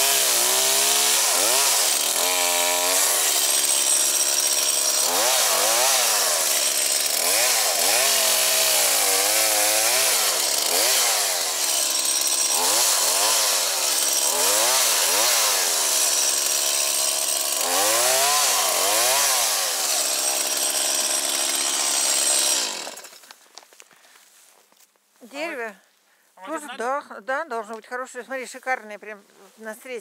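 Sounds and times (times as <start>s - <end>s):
chainsaw cutting logs: 0.0s - 23.4s.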